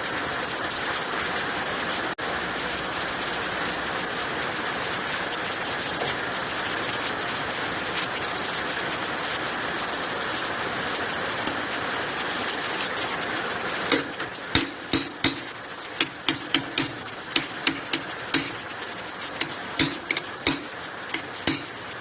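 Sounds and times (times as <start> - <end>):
steady hiss: 10.4 - 22.0
hand tools knocking on metal: 13.9 - 21.8.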